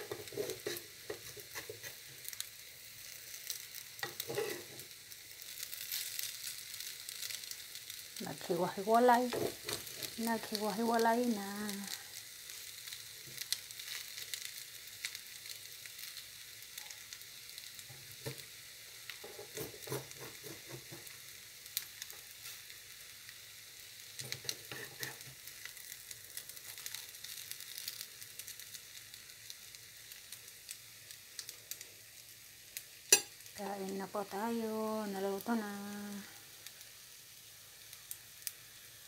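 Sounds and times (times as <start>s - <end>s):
metal spoon scraping a pan: 0.0s - 2.1s, 4.0s - 4.8s, 19.2s - 21.1s, 24.2s - 25.3s, 33.1s - 33.4s
food sizzling in a frying pan: 0.0s - 39.0s.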